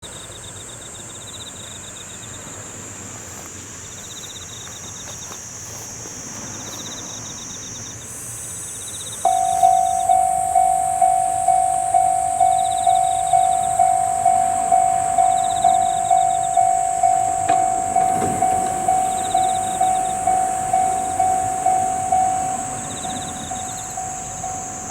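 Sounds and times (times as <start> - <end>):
insects droning and chirping: 0.0 - 24.9
level crossing warning bell ringing: 6.6 - 24.9.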